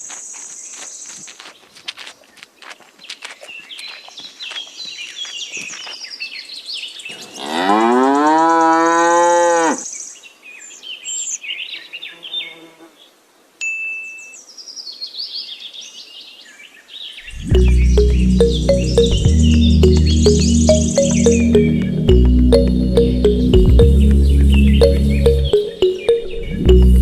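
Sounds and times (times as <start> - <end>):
birds chirping: 0.2 - 7.9, 17.1 - 27.0.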